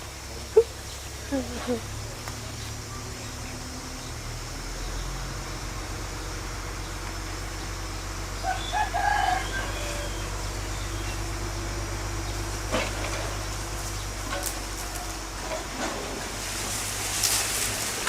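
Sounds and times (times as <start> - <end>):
bulldozer engine droning: 0.0 - 18.0
rooster crowing: 8.4 - 11.1.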